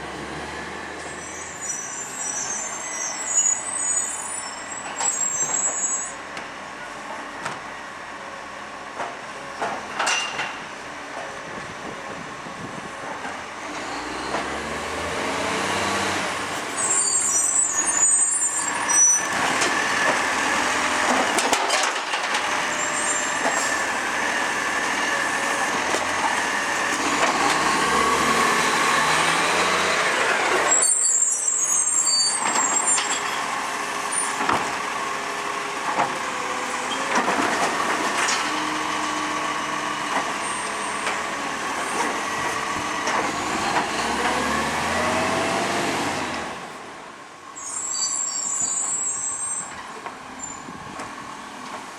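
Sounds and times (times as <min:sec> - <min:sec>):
truck engine revving: 0:13.6 - 0:16.6, 0:22.4 - 0:30.8, 0:36.6 - 0:46.6.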